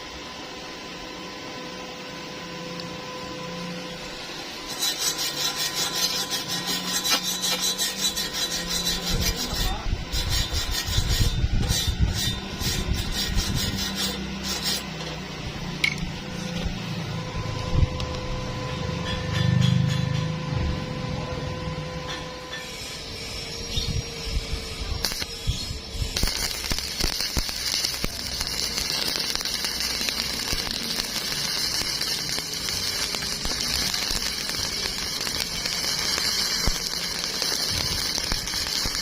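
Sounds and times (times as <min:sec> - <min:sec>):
steady hum: 0:00.0 - 0:39.0
hand tool rasping on metal: 0:04.6 - 0:14.8, 0:26.1 - 0:39.0.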